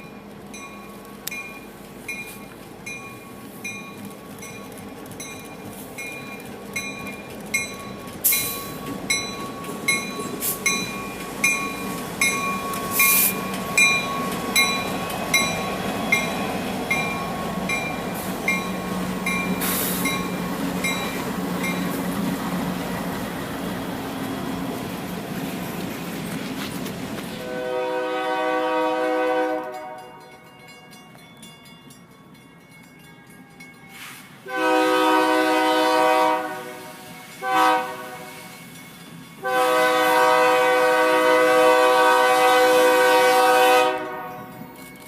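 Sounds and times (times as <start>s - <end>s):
crossing bell ringing: 0.0s - 22.2s, 28.4s - 35.0s, 38.4s - 40.4s, 44.1s - 45.0s
train rumble: 0.0s - 45.0s
wheels clacking over rail joints: 0.4s - 27.5s.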